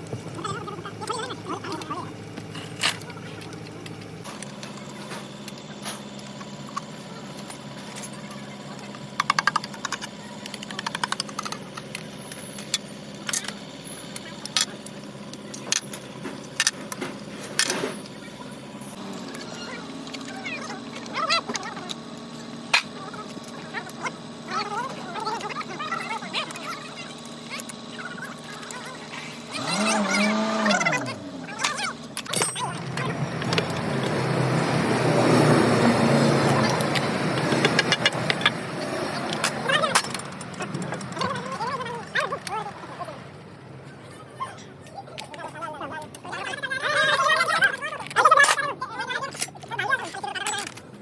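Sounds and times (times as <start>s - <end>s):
steady background hum: 0.0s - 51.0s
vehicle engine drone: 0.0s - 51.0s
metal tools clinking: 29.6s - 34.2s, 36.4s - 42.6s, 47.0s - 50.9s.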